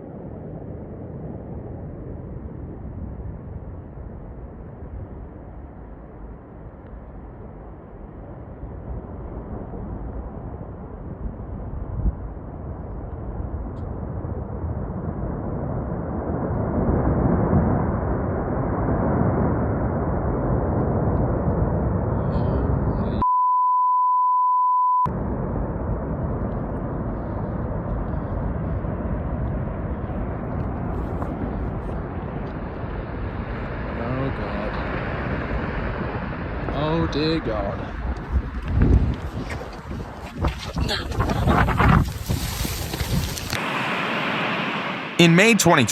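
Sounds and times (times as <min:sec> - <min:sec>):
storm wind buffeting microphone: 0:00.0 - 0:23.2, 0:25.1 - 0:44.8
high censor bleep: 0:23.2 - 0:25.1.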